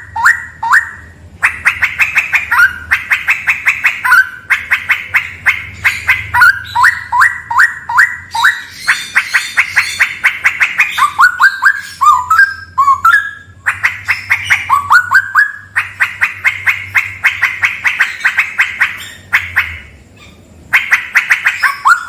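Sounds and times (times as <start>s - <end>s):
bird singing: 0.0s - 22.0s
faint low hum: 0.0s - 22.0s.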